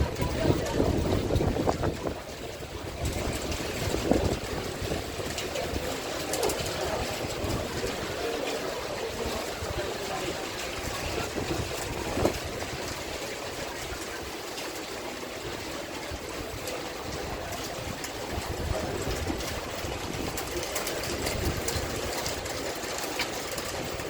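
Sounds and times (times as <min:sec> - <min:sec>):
wind gusts on microphone: 0:00.0 - 0:08.2, 0:09.1 - 0:13.2, 0:16.2 - 0:22.8
raindrops ticking: 0:00.0 - 0:24.0.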